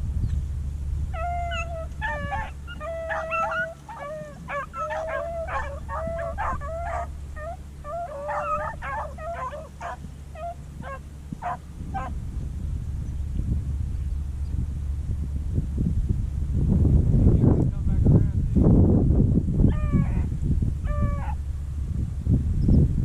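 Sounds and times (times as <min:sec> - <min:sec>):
steady low rumble: 0:00.0 - 0:23.0
dogs baying and yelping: 0:01.1 - 0:12.2, 0:19.7 - 0:21.4.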